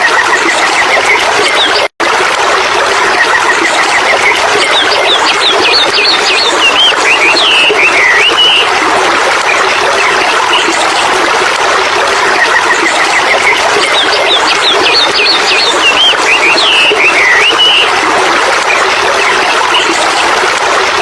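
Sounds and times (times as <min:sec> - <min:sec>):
flowing water: 0:00.0 - 0:21.0
bird singing: 0:04.7 - 0:08.7, 0:13.2 - 0:17.9.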